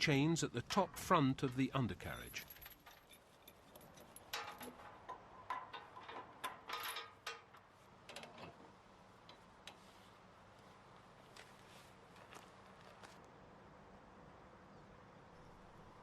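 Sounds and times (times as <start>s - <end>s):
steel chains clinking: 2.1s - 7.5s.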